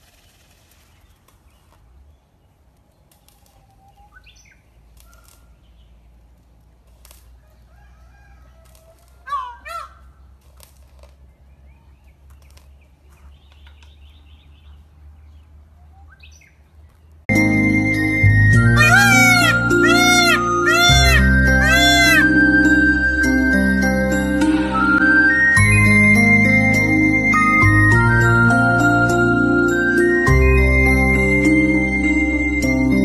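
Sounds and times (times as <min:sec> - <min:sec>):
rustles and clicks: 0:00.0 - 0:07.5, 0:10.3 - 0:11.4, 0:12.0 - 0:14.2
small birds chirping: 0:00.2 - 0:06.5, 0:09.2 - 0:17.3, 0:18.4 - 0:22.2
loud short bird calls: 0:18.7 - 0:22.3.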